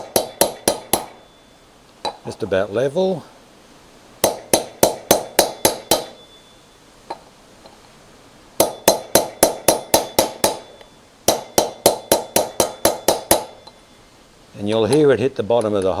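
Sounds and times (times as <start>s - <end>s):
hammer tapping metal: 0.0s - 1.3s, 4.2s - 6.4s, 8.6s - 13.8s, 14.6s - 16.0s.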